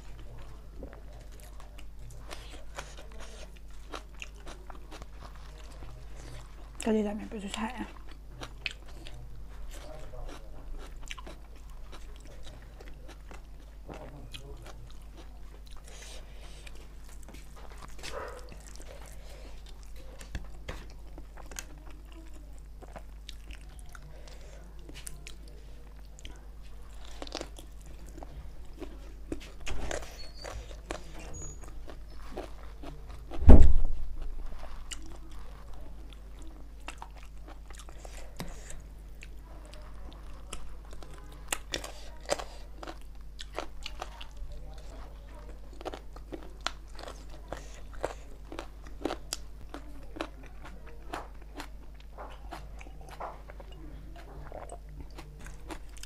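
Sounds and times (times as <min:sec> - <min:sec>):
chewing with wet mouth smacks: 0:00.0 - 0:33.4, 0:34.5 - 0:56.0
loud low thump: 0:33.4 - 0:34.0.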